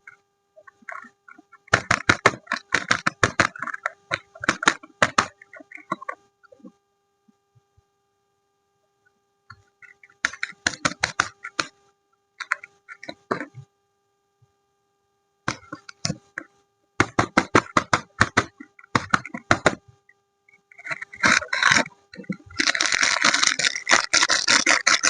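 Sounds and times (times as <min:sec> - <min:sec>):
faint steady hum: 0:00.0 - 0:25.0
packaging crinkling: 0:20.9 - 0:25.0.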